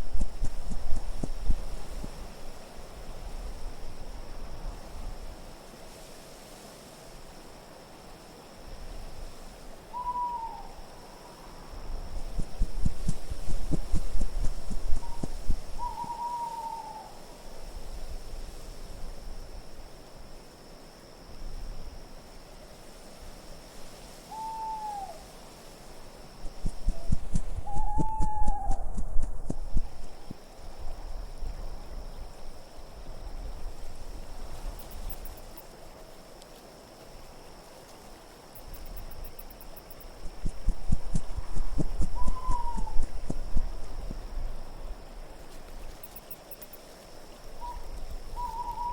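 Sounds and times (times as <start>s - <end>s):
low steady wind rumble: 0.0s - 36.1s, 36.7s - 48.9s
faint high hiss: 0.0s - 48.9s
tiny high tinkling ticks: 34.7s - 36.6s, 38.5s - 44.4s, 45.6s - 47.2s.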